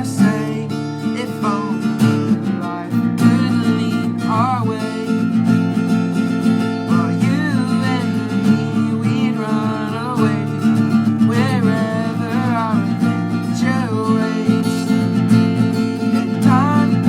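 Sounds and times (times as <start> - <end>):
acoustic guitar strumming: 0.0 - 17.0
man singing: 0.0 - 17.0.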